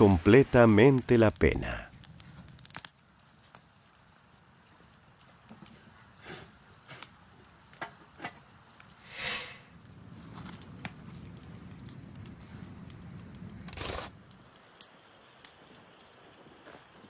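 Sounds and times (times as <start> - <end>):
bonfire crackling: 0.0 - 17.0
fire rushing burst: 9.0 - 10.1.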